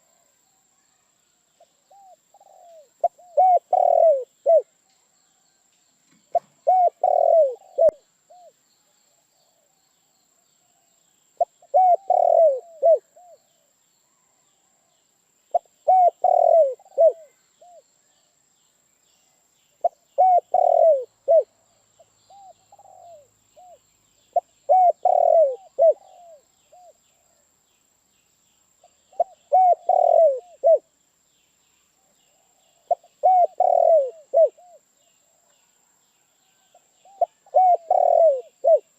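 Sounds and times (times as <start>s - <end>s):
dove cooing: 1.9s - 4.7s, 6.3s - 8.5s, 11.4s - 13.4s, 15.5s - 17.8s, 19.8s - 21.5s, 22.3s - 23.8s, 24.4s - 27.0s, 29.2s - 30.9s, 32.3s - 34.8s, 36.5s - 38.9s.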